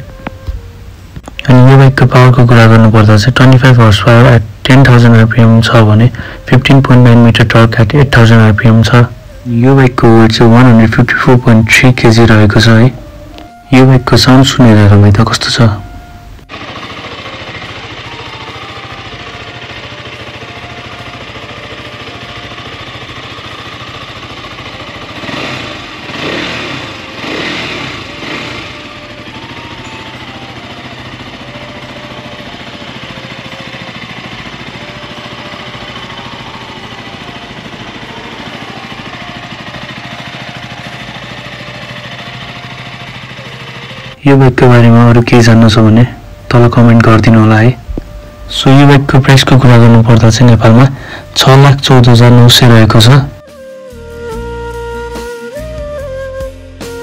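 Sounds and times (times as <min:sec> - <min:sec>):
motorcycle engine idling and revving: 0:15.2 - 0:54.0.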